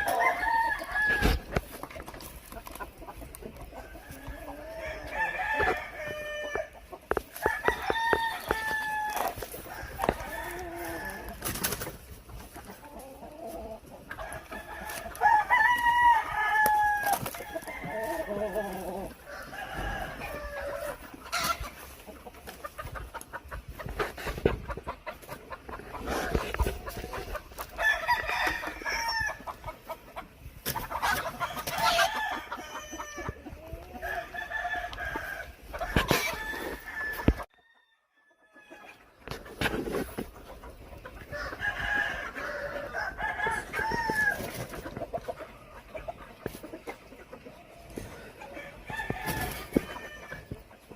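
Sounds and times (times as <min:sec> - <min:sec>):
roosters crowing: 0:00.0 - 0:01.8, 0:03.5 - 0:12.0, 0:12.6 - 0:22.0, 0:25.6 - 0:29.9, 0:30.6 - 0:39.2, 0:41.2 - 0:44.8, 0:47.9 - 0:50.7
chickens clucking: 0:00.0 - 0:50.9.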